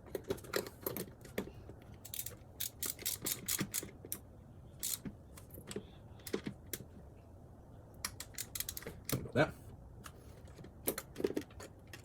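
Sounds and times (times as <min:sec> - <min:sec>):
ratchet wrench clicking: 0:02.1 - 0:03.9, 0:04.8 - 0:05.0, 0:08.2 - 0:08.8.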